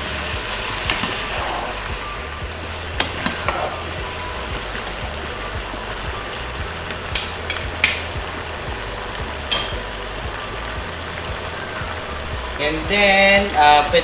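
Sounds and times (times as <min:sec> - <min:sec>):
meat sizzling in a pan: 0:00.0 - 0:14.0
metal spoon clinking on pan: 0:07.2 - 0:08.1, 0:09.5 - 0:09.8.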